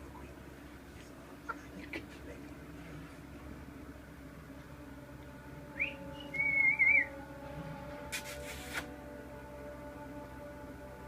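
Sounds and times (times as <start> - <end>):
parrot whistling: 5.8 - 7.2.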